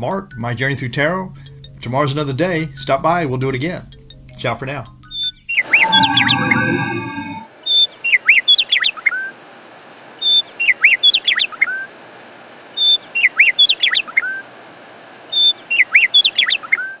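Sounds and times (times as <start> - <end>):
bird song whistles and chirps: 5.1 - 9.2, 15.3 - 17.0.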